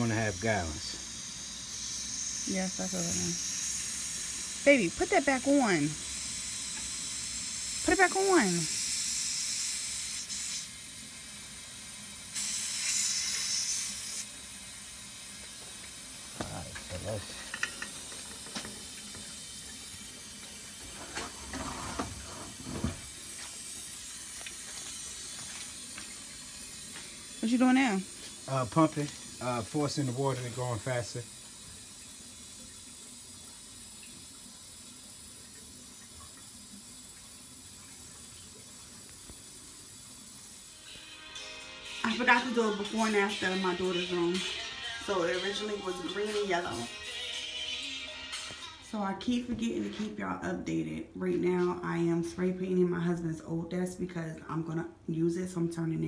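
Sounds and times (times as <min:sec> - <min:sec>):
air hissing from vent: 0:00.0 - 0:07.8, 0:08.4 - 0:25.4
water rushing through pipes: 0:14.3 - 0:40.9.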